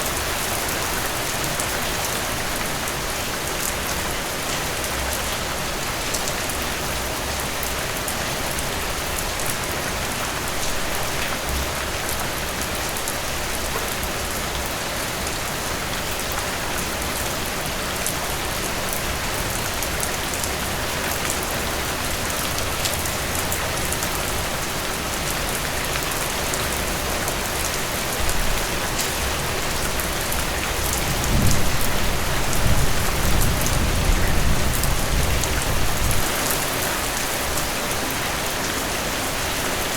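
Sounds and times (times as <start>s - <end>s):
thunder rumbling: 31.0s - 36.3s.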